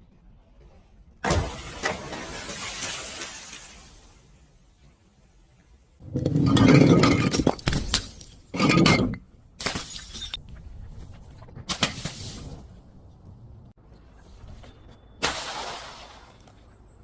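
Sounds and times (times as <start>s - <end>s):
glass shards clinking: 6.2s - 10.4s
glass shattering: 6.2s - 10.4s.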